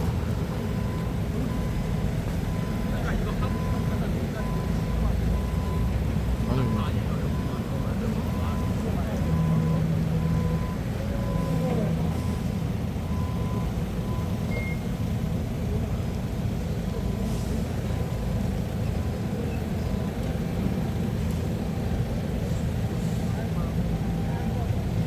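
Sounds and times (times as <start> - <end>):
heavy equipment engine running: 0.0 - 25.0
reversing alarm beeps: 0.1 - 15.0.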